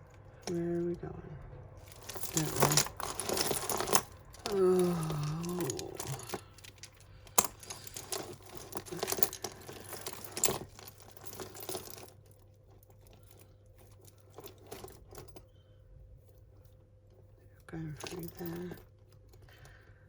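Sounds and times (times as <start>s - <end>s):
beads and chain clinking: 0.0s - 1.0s, 1.8s - 15.5s, 17.8s - 19.5s
rustling: 1.8s - 15.5s.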